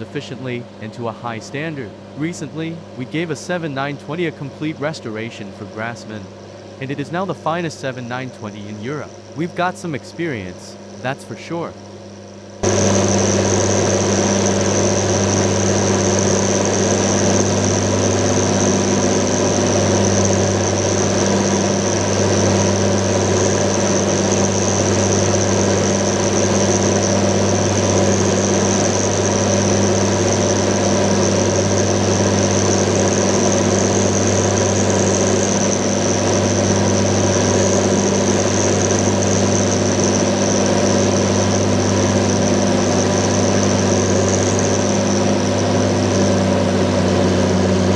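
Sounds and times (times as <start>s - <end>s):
high whine: 0.0s - 47.9s
tractor diesel engine running: 12.6s - 47.9s.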